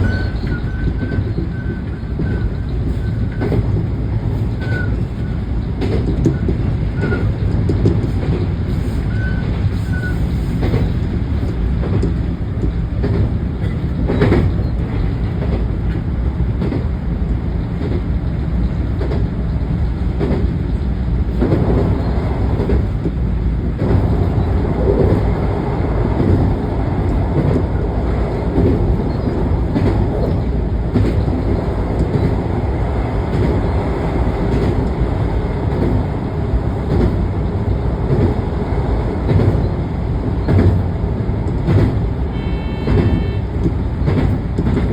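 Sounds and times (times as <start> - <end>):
train wheels rumbling: 0.0 - 44.9.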